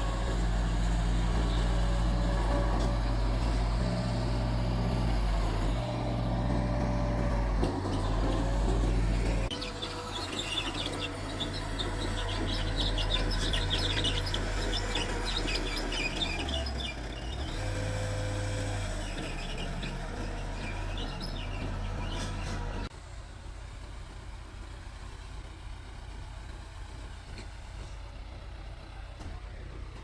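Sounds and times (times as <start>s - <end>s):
high-pitched squeaks and scrapes: 0.0s - 22.9s
bulldozer diesel engine drone: 0.0s - 30.0s.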